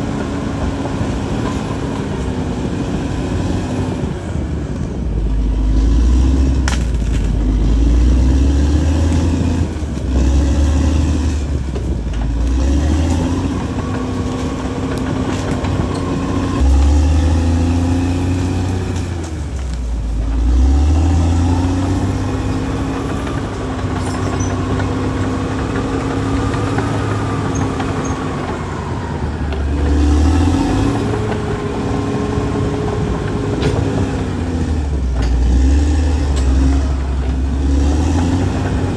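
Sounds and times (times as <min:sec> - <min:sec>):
bulldozer diesel engine: 0:00.0 - 0:38.9.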